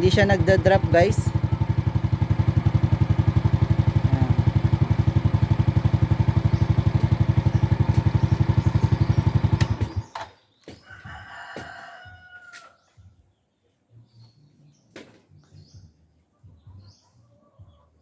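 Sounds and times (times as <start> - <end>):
motorcycle engine idling: 0.0 - 10.4
rooster crowing: 10.8 - 12.9.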